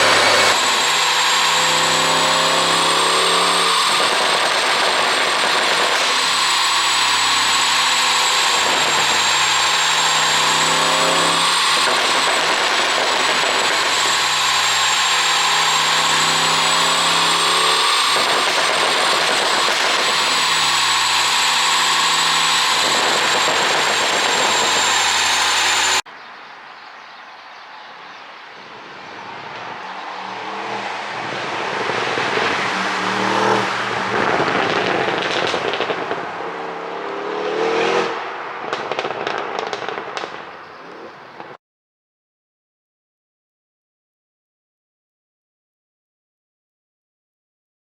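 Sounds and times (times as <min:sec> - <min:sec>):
car engine revving: 0:00.0 - 0:26.0, 0:28.7 - 0:40.5
steady high whine: 0:00.0 - 0:26.0.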